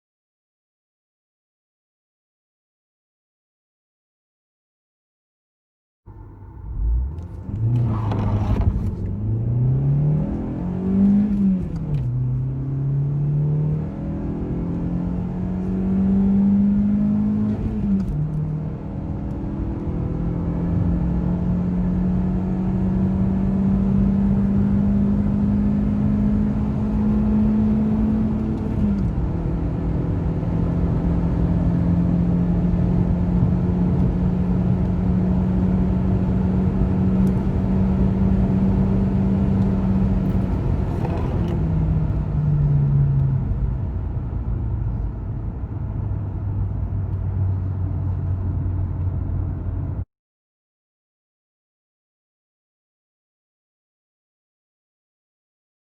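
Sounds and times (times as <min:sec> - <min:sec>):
car engine accelerating through gears: 0:06.1 - 0:50.0
road rumble: 0:06.1 - 0:50.0.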